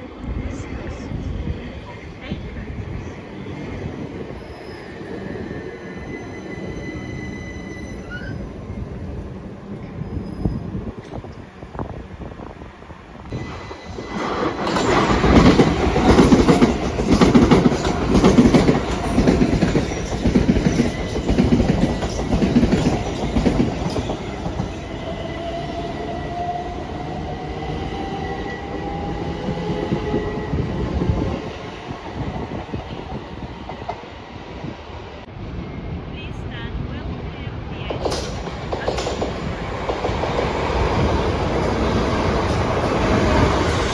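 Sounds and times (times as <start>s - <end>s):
train wheels clattering over joints: 14.0s - 25.0s, 38.0s - 43.9s.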